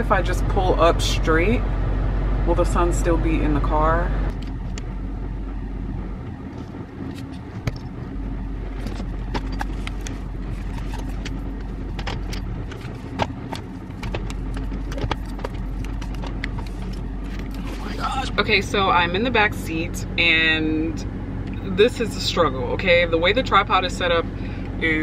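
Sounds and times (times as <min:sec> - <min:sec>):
car engine idling: 0:00.0 - 0:25.0
clicks and knocks from handling: 0:08.8 - 0:17.6.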